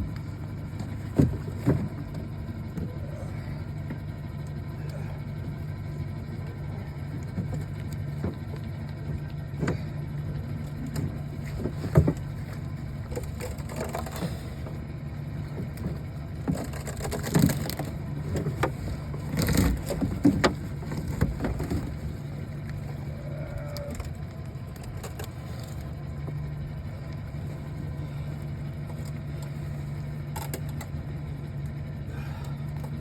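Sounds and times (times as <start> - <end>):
boat motor idling: 0.0 - 33.0.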